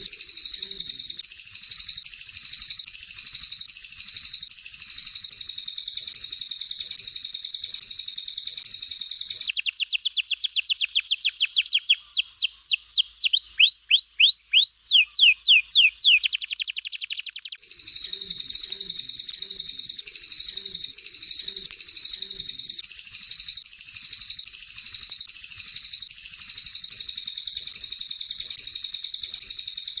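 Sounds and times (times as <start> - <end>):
canary buzzing trill: 0.0 - 29.6.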